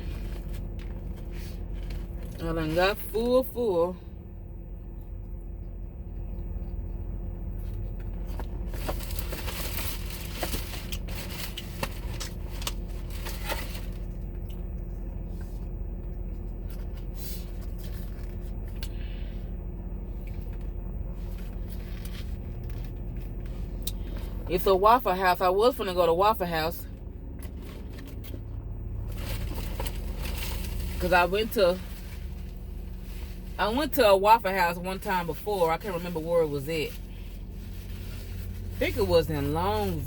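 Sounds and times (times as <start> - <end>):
steady low hum: 0.0 - 40.0
food packaging rustling: 8.2 - 14.5, 27.5 - 33.6.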